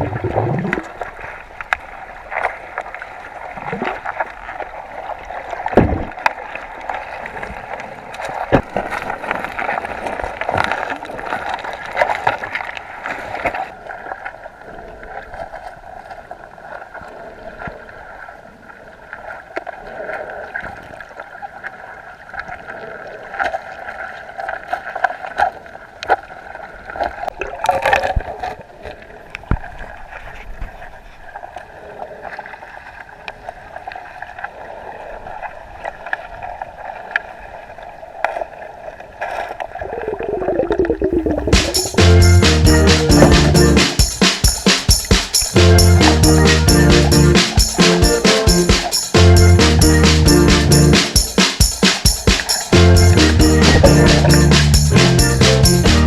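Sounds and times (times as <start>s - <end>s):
clicks and knocks underwater: 0.0s - 14.4s, 27.0s - 31.3s, 39.2s - 41.9s
muffled underwater stream rushing: 0.0s - 44.0s, 52.7s - 55.1s.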